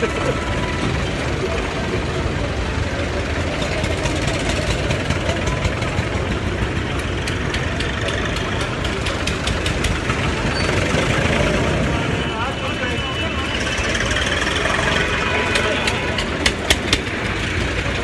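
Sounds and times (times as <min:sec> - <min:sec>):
tractor engines running: 0:00.0 - 0:18.0.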